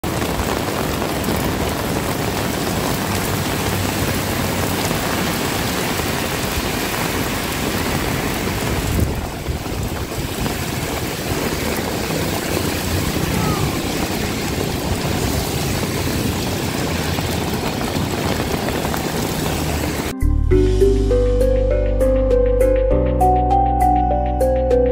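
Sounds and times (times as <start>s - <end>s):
heavy rain pouring: 0.0s - 20.2s.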